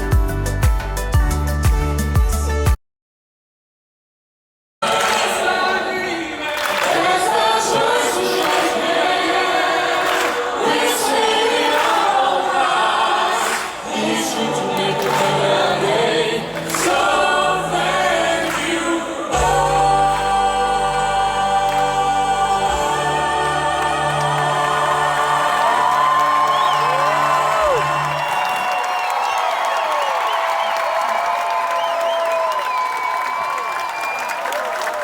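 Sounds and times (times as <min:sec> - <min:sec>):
choir singing: 0:04.8 - 0:28.3
steady bass and held chords: 0:19.3 - 0:25.4.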